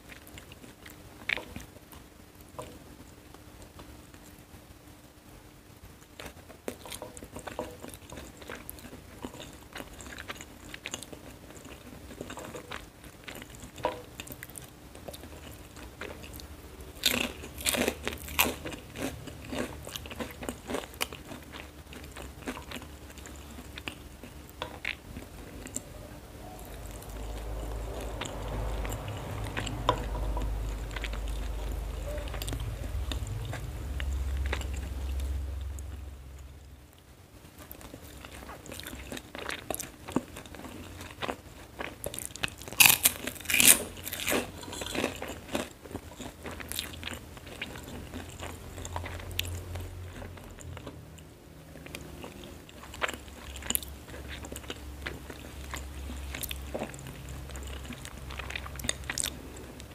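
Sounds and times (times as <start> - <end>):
chewing and crunching noodles: 0.0 - 4.4, 6.0 - 25.9, 26.6 - 36.0, 37.6 - 59.9
low rumble: 25.3 - 36.8.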